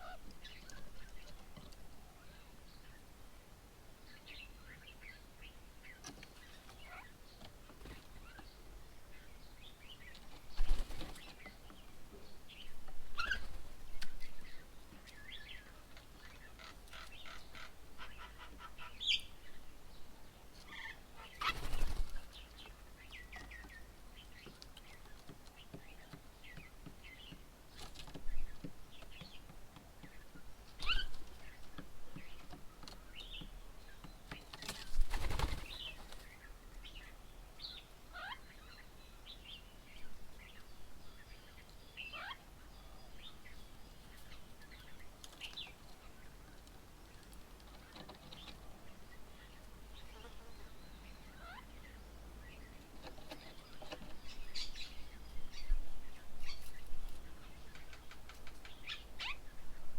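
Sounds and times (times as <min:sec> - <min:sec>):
birds chirping and whistling: 0:30.8 - 0:31.2.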